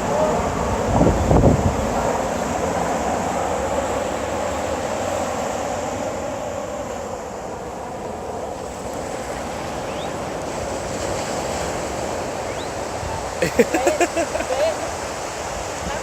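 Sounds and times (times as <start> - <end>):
wind on microphone: 0.0 - 7.7
surf and waves: 0.0 - 16.0.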